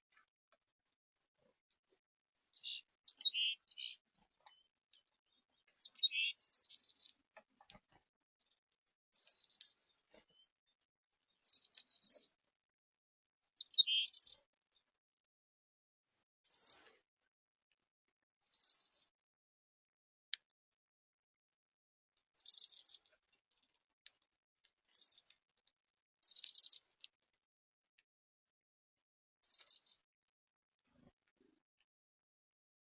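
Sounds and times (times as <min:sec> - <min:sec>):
songbirds chattering: 0:00.8 - 0:12.3, 0:13.4 - 0:14.5, 0:16.5 - 0:16.9, 0:18.4 - 0:19.1, 0:22.3 - 0:23.1, 0:24.8 - 0:25.4, 0:26.2 - 0:27.0, 0:29.4 - 0:30.0.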